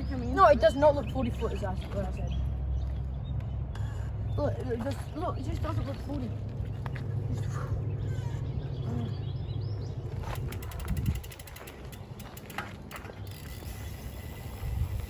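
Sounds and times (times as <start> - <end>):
bicycle freehub ratcheting: 10.2 - 15.0.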